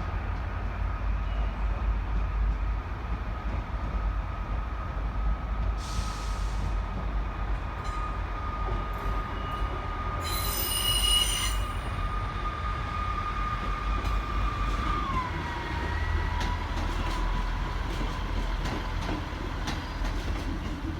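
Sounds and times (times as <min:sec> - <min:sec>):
train rumble: 0:00.0 - 0:20.9
train wheel squeal: 0:07.8 - 0:17.6.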